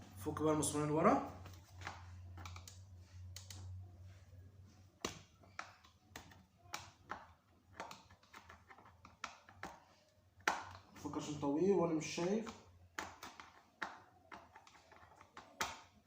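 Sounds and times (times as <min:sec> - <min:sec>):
screwdriver clicks and taps: 0:01.4 - 0:02.8, 0:05.0 - 0:09.8, 0:10.4 - 0:10.8, 0:12.4 - 0:16.0.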